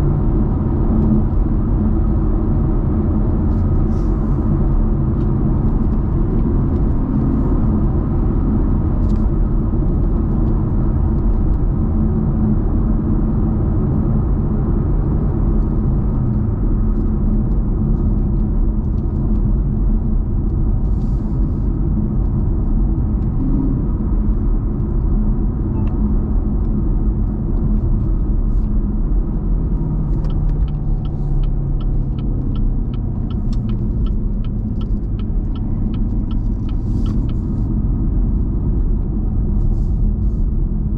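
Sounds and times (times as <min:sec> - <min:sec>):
car engine low rumble: 0:00.0 - 0:40.9
road noise: 0:00.0 - 0:40.9
quick regular ticks: 0:30.1 - 0:37.6.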